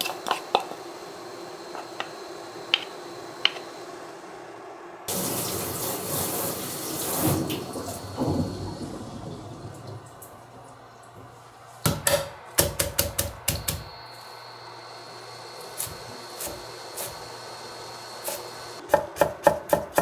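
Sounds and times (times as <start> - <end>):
water running from a tap: 5.1 - 11.9, 13.5 - 18.8.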